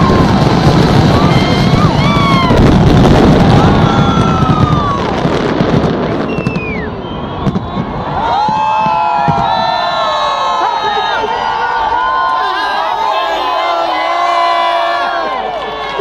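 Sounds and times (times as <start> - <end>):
fireworks bangs and crackling: 0.0 - 10.7
crowd whooping: 0.0 - 16.0.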